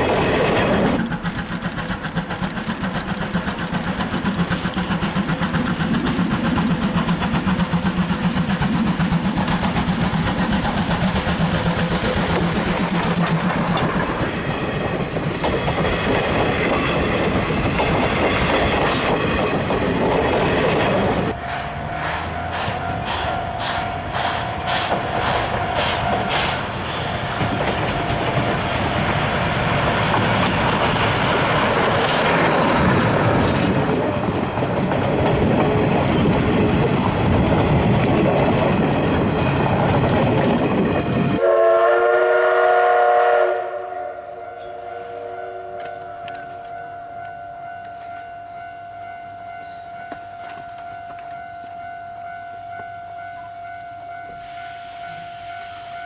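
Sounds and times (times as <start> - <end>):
wheels clattering over rail joints: 0.0 - 41.4
steam train running on track: 0.0 - 56.0.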